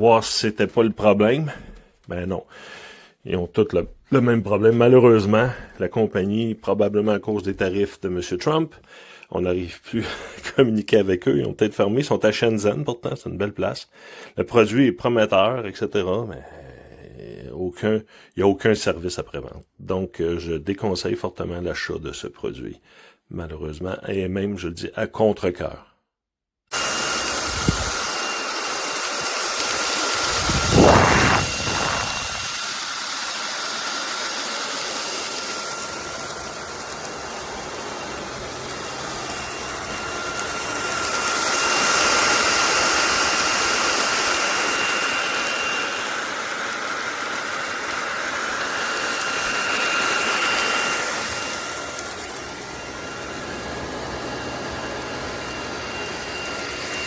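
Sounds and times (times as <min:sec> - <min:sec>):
stick vacuum motor whining: 0:26.7 - 0:57.0.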